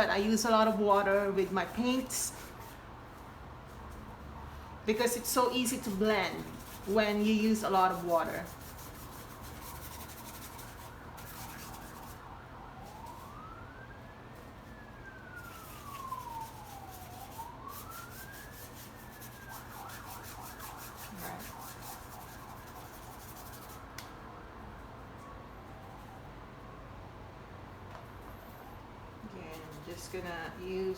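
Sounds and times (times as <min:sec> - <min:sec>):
faint siren wailing: 0:00.0 - 0:30.9
paintbrush rubbing on paper: 0:00.1 - 0:04.3, 0:04.9 - 0:12.3, 0:15.4 - 0:23.9.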